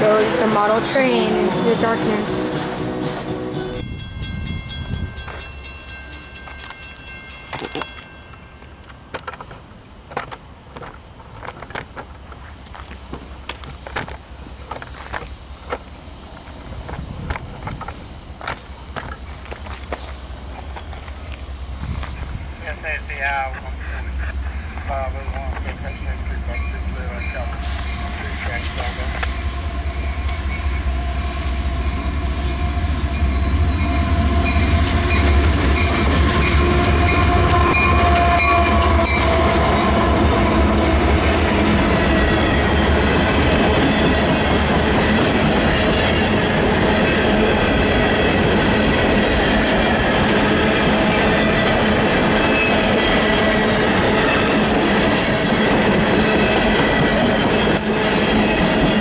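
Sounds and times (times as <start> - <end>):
deep locomotive rumble: 0.0 - 6.8, 11.2 - 59.0
train wheels squealing: 19.0 - 59.0.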